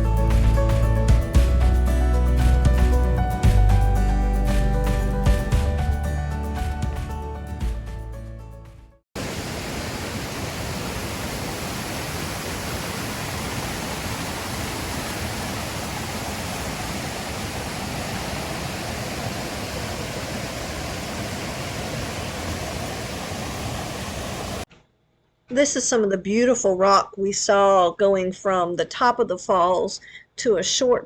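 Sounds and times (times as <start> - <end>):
falling water rushing: 9.2 - 24.7.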